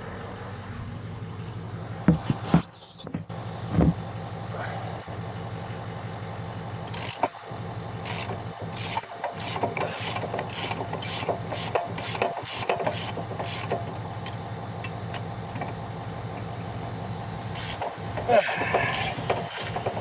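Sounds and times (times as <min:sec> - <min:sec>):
steady low hum: 0:00.0 - 0:12.0
ratchet clicking on bolt: 0:06.9 - 0:07.4, 0:08.0 - 0:15.8, 0:17.6 - 0:20.0.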